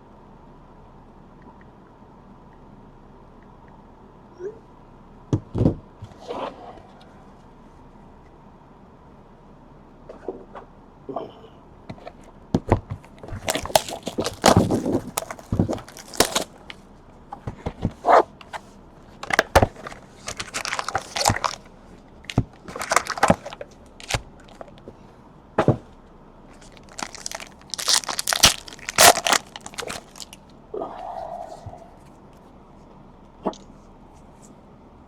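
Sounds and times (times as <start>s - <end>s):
card wrappers tearing and crinkling: 13.2s - 16.8s, 19.2s - 21.7s, 22.3s - 24.8s, 26.6s - 30.4s
cards being handled: 13.2s - 16.8s, 19.2s - 21.7s, 22.3s - 24.9s, 26.5s - 30.4s.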